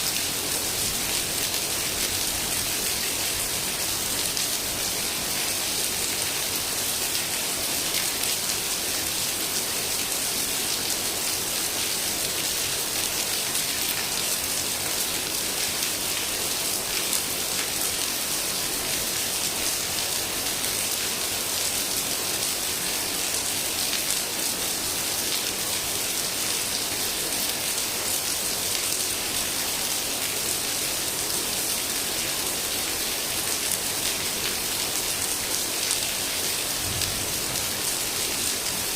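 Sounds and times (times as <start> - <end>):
raindrops pattering on surfaces: 35.8 - 38.9
heavy rain hissing: 36.4 - 38.9.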